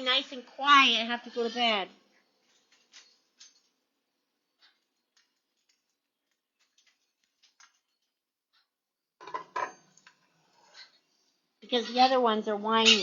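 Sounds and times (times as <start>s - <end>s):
faint clicks and taps: 4.6s - 8.8s.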